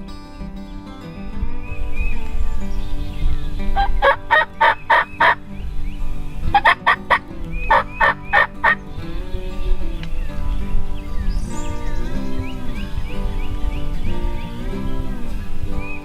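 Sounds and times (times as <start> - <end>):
turkey gobbling: 3.8 - 5.4, 6.5 - 8.8.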